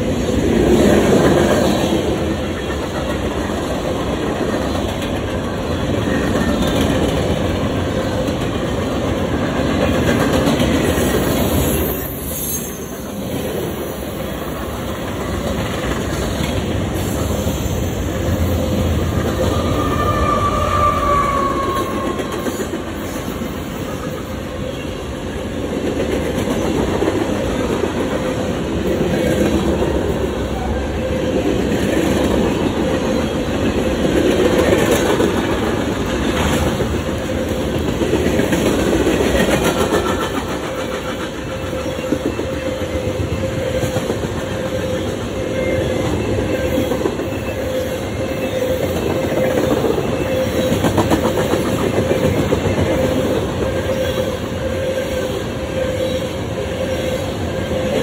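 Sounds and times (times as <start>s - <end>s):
freight wheels clacking on rails: 0.0s - 12.1s, 12.7s - 56.2s
high wheel squeal: 11.0s - 14.6s, 17.0s - 25.0s.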